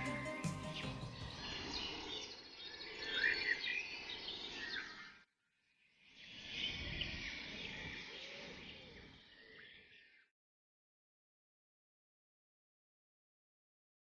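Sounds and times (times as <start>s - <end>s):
birds chirping: 0.0s - 5.2s, 6.3s - 10.3s.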